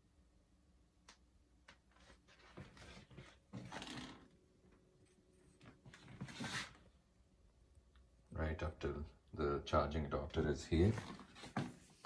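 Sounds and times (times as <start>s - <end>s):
faint rustling and handling: 1.7s - 4.1s, 4.8s - 7.0s, 10.4s - 12.0s.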